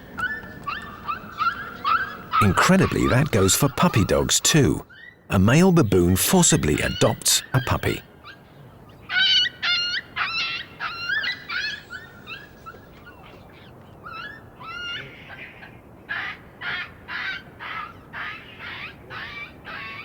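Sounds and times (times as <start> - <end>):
puppy whimpering and yelping: 9.2 - 13.3.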